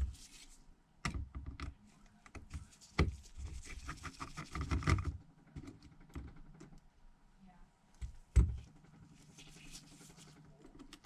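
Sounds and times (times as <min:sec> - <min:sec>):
soft rustle: 0:00.0 - 0:00.7, 0:01.8 - 0:04.4, 0:09.0 - 0:10.7.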